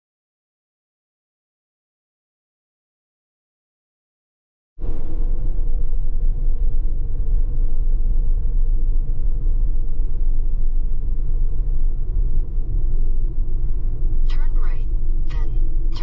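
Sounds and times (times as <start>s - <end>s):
engine and tyre rumble: 4.8s - 16.0s
faint steady hum: 4.8s - 16.0s.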